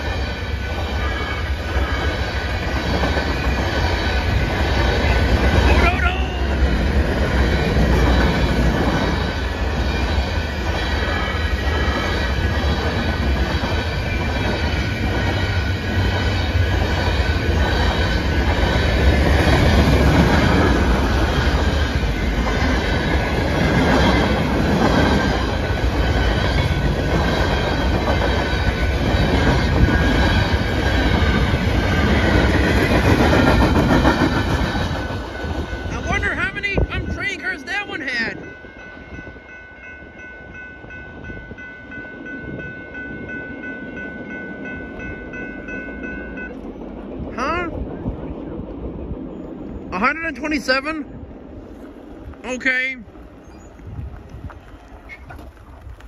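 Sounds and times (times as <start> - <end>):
train wheels clattering on rail: 0.0 - 36.9.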